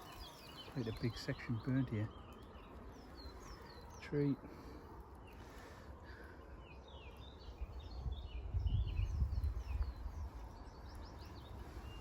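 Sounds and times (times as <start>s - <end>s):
small birds chirping: 0.0s - 12.0s
low rumble on microphone: 7.6s - 12.0s.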